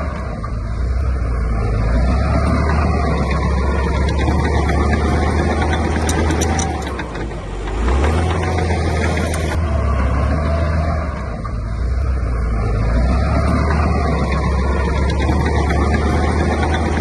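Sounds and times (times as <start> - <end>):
heavy machinery diesel engine: 0.0 - 17.0
light clacks: 1.8 - 9.6.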